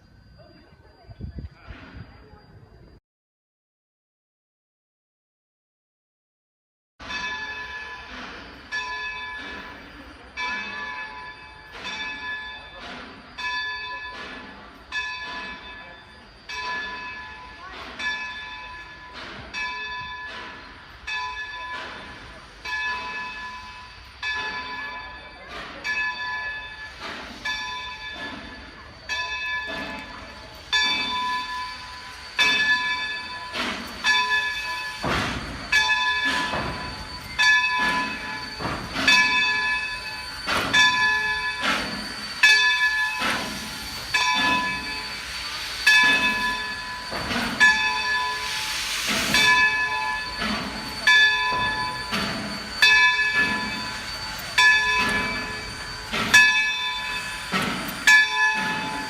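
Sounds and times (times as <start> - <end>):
locomotive bell ringing: 7.0 - 59.0.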